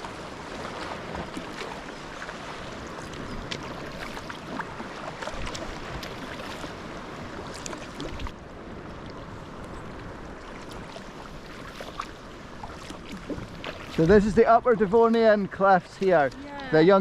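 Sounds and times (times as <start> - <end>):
paddle splashes and drips: 0.0 - 16.9
sea water washing: 0.0 - 17.0.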